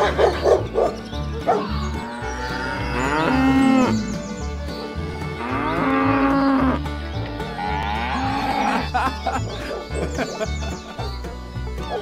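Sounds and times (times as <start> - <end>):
cows mooing: 1.6 - 4.2, 5.3 - 6.9, 7.5 - 9.0.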